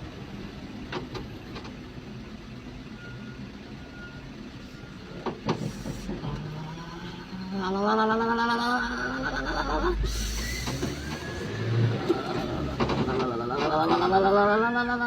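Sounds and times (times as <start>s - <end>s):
truck engine running: 0.0s - 15.0s
short hiss: 5.6s - 6.2s.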